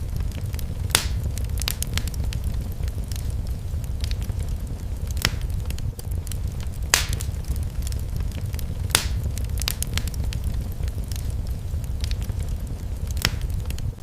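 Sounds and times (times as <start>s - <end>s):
fire crackling in fireplace: 0.0s - 14.0s
low rumble: 0.0s - 14.0s
sharp fire pops: 0.0s - 14.0s.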